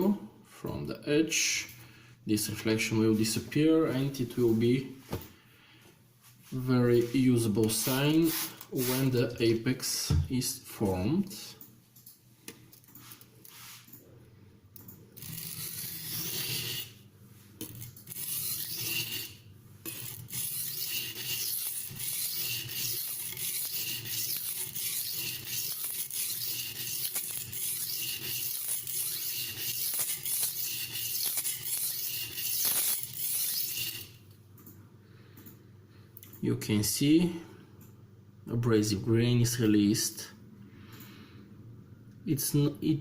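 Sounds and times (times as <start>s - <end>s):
knife grinding on whetstone: 15.2s - 17.0s, 17.6s - 34.2s.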